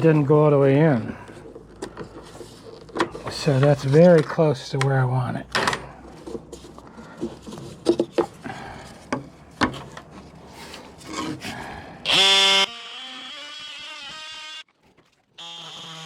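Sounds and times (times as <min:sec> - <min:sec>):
wooden board scraping and knocking: 0:06.2 - 0:11.6.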